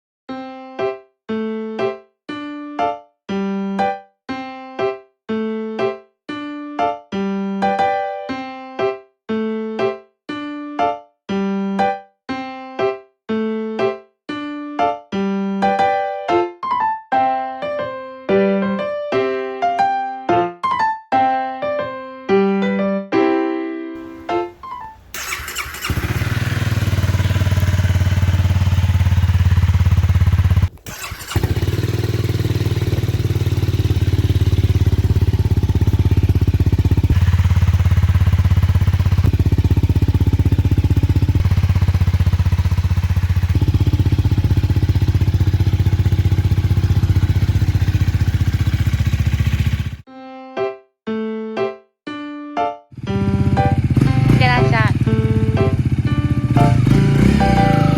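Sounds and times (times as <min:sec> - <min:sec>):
piano music: 0:00.3 - 0:25.2, 0:50.1 - 0:57.9
motorcycle engine idling: 0:25.1 - 0:50.0, 0:53.2 - 0:57.9.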